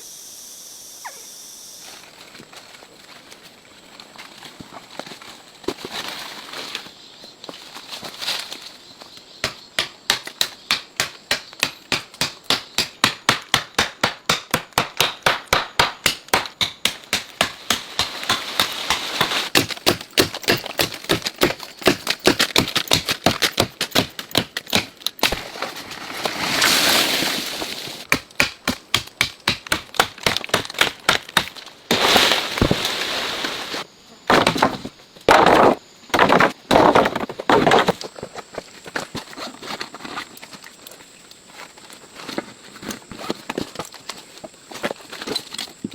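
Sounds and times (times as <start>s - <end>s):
wood being chopped: 9.4s - 25.5s, 28.0s - 32.9s, 34.3s - 38.0s.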